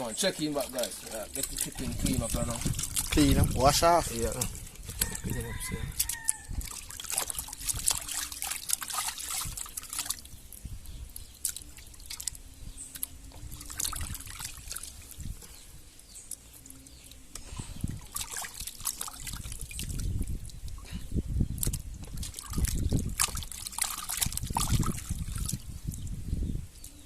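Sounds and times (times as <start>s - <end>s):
hands splashing in water: 0.5s - 10.4s, 11.1s - 15.1s, 17.8s - 20.8s, 21.5s - 25.6s.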